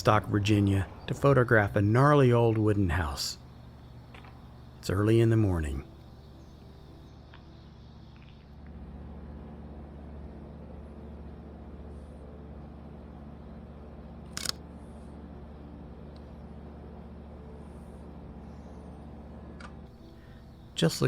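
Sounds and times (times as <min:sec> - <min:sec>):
low background hum: 0:00.0 - 0:21.0
camera shutter clicking: 0:14.3 - 0:14.6.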